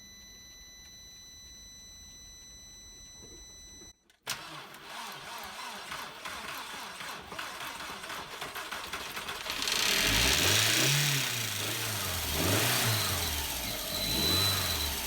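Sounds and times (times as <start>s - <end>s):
car engine cranking and starting: 4.2s - 15.0s.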